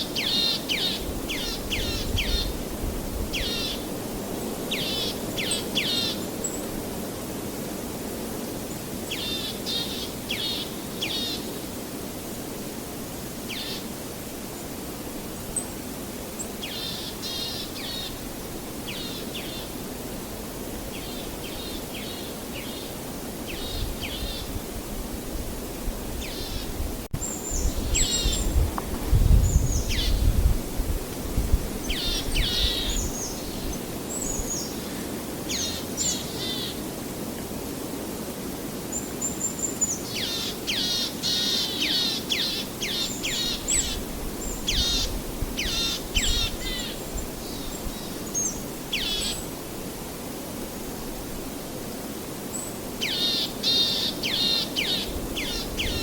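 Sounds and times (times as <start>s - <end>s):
songbirds chirping: 31.8s - 36.9s.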